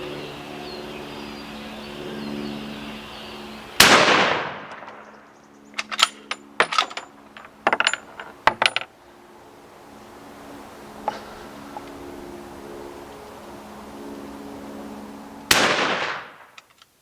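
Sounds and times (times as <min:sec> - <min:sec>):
low hum: 0:00.0 - 0:16.6
rifle shot: 0:03.8 - 0:05.0, 0:15.5 - 0:16.5.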